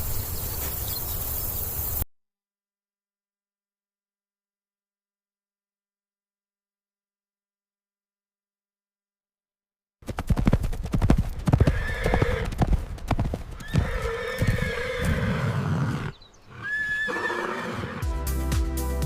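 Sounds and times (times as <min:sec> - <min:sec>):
hooves clopping: 0:10.0 - 0:15.4
horse neighing: 0:11.6 - 0:12.5, 0:13.6 - 0:18.0.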